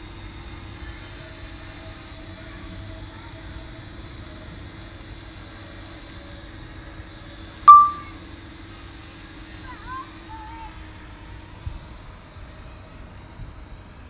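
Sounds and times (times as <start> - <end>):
loud click and beep: 7.7 - 8.1.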